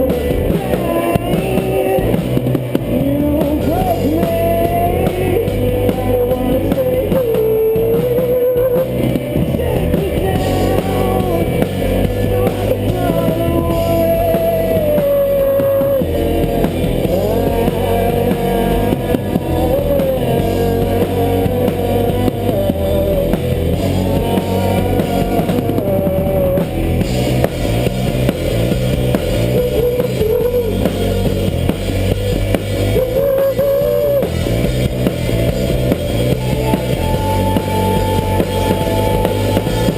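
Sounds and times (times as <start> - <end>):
melodic guitar lead line: 0.0 - 39.9
rock band playing live: 0.0 - 39.9.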